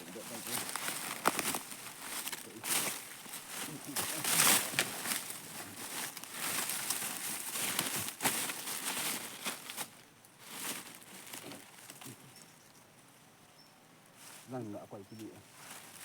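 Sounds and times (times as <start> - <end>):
rustling and crackling: 0.0 - 13.0, 14.1 - 16.0.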